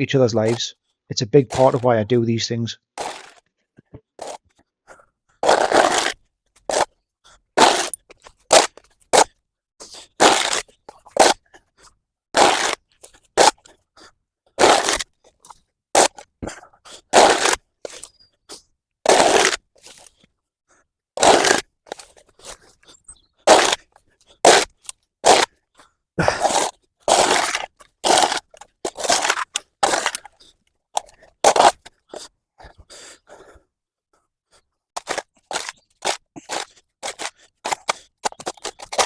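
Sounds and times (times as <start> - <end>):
tool scraping mud off path: 0.1 - 0.7, 1.3 - 2.1, 3.0 - 4.5, 5.4 - 7.0, 7.6 - 11.6, 12.3 - 13.8, 14.6 - 20.2, 21.2 - 32.3, 34.5 - 39.0
knocks and crunches: 3.0 - 4.6, 5.4 - 6.9, 7.6 - 9.4, 10.1 - 11.5, 12.4 - 13.8, 14.6 - 16.5, 19.1 - 20.2, 21.2 - 22.7, 23.5 - 25.6, 26.2 - 32.2, 35.0 - 39.0.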